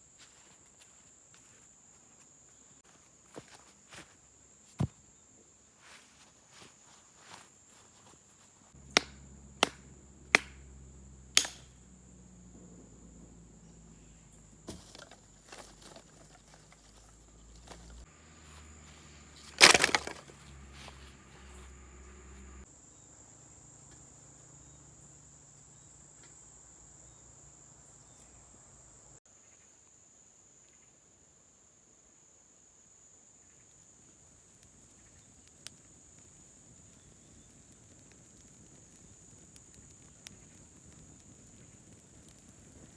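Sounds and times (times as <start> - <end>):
high insect drone: 0.0 - 37.5
chopping strikes on wood: 8.9 - 9.8
wood cracking and splintering: 14.7 - 18.0, 19.4 - 21.0.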